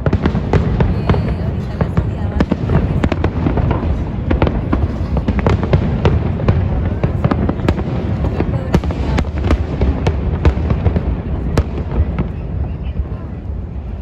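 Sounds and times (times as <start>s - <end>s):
fireworks cracks and booms: 0.0s - 14.0s.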